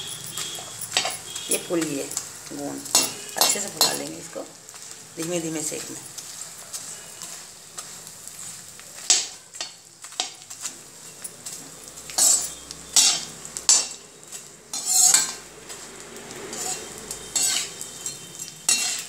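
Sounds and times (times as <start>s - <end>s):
food sizzling in oil: 0.0s - 19.0s
metal skimmer scraping pan: 12.1s - 15.4s, 16.5s - 19.0s.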